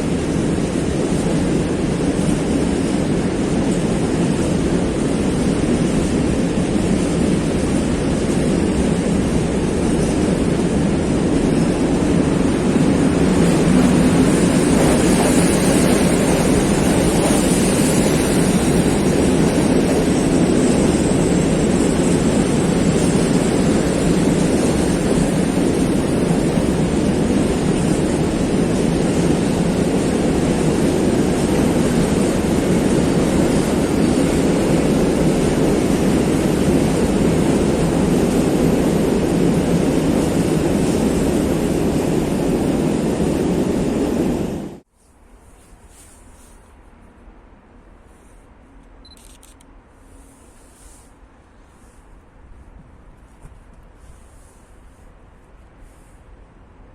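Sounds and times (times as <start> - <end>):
train wheels rumbling on rails: 0.0 - 44.9.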